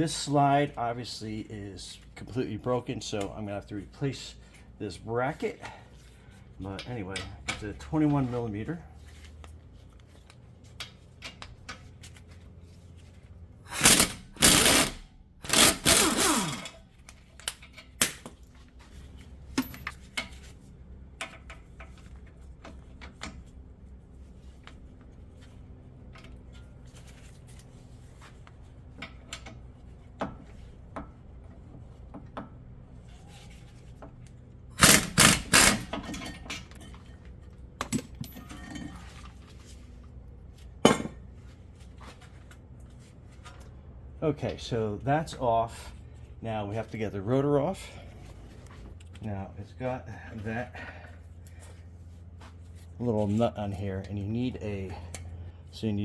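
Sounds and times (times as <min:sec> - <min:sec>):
impact wrench bursts: 0:13.7 - 0:16.8, 0:34.7 - 0:36.2.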